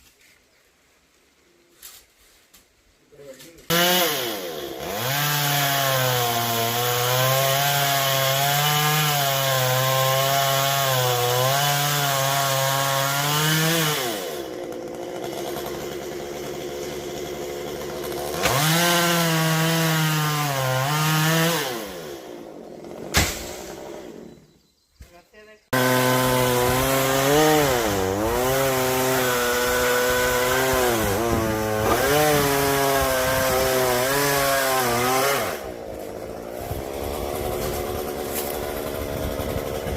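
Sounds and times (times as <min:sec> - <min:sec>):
chainsaw cutting wood: 0:03.7 - 0:24.4, 0:25.7 - 0:39.9
sharp knock: 0:23.1 - 0:23.6.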